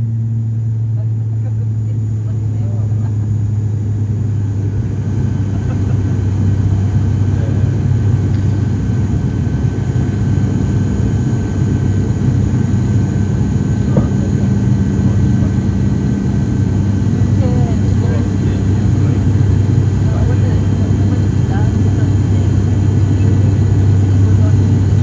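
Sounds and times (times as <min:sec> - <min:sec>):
high engine whine: 0:00.0 - 0:25.0
turboprop cabin drone: 0:00.0 - 0:25.0.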